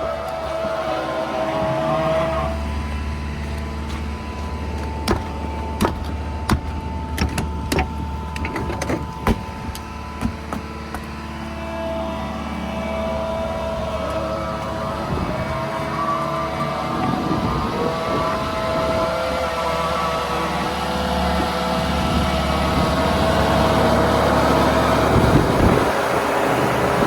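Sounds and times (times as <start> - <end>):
vehicle engine running: 0.0 - 27.0
sharp clicks and knocks: 4.8 - 11.1.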